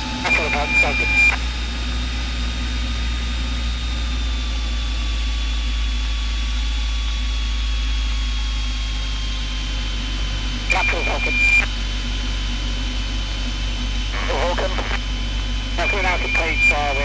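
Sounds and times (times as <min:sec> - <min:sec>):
faint high whine: 0:00.0 - 0:01.8, 0:09.6 - 0:17.0
propeller engine drone: 0:00.0 - 0:17.0.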